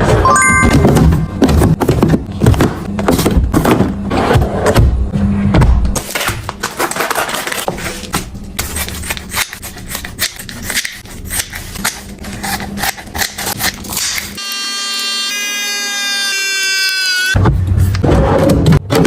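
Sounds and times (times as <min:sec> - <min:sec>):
packaging being handled: 0:06.0 - 0:14.3.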